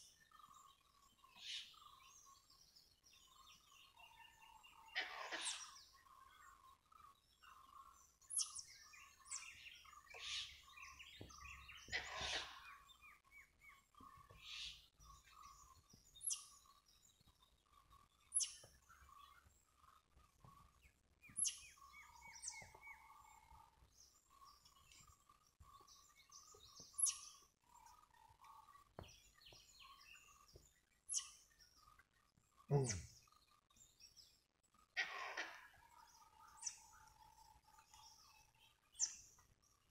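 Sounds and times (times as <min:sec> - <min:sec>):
faint birdsong: 0:00.0 - 0:39.9.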